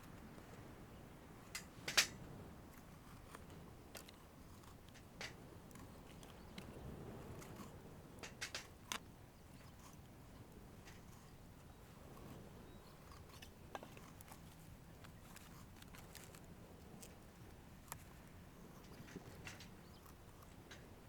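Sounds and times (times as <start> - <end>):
faint steady background noise: 0.0 - 21.0
light clicks and taps: 1.5 - 11.2, 13.1 - 21.0.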